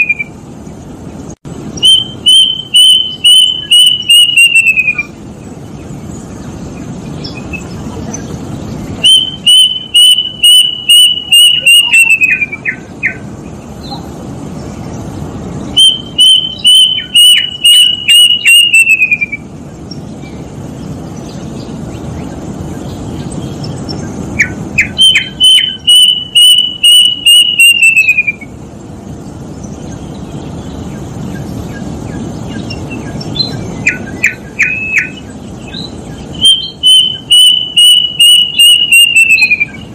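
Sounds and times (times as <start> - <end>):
cuckoo whistled song: 0.0 - 0.4, 1.8 - 5.2, 9.0 - 13.2, 15.7 - 19.5, 24.4 - 28.6, 32.5 - 39.9
low background hum: 0.0 - 39.9.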